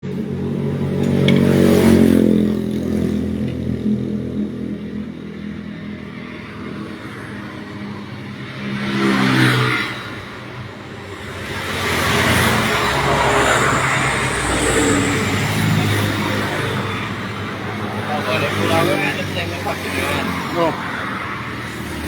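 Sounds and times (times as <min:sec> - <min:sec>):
vehicle engine revving: 0:08.8 - 0:22.0.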